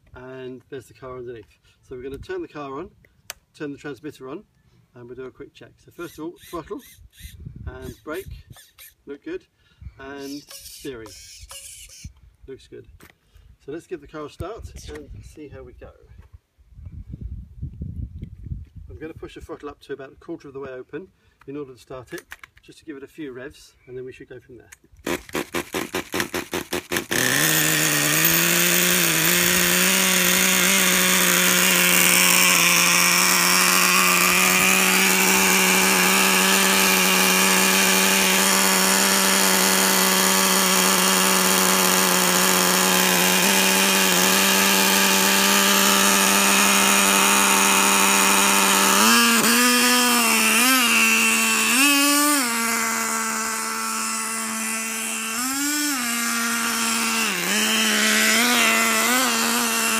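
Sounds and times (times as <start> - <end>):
nitro engine running and revving: 25.4 - 59.9.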